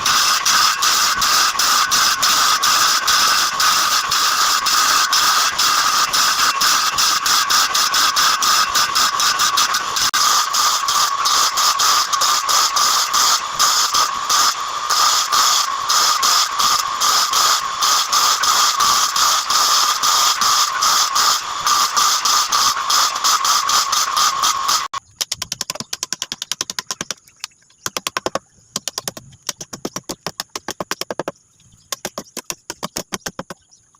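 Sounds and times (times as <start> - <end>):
power tool whining and rattling: 0.0 - 25.0
rapid quiet clicking: 21.1 - 33.6.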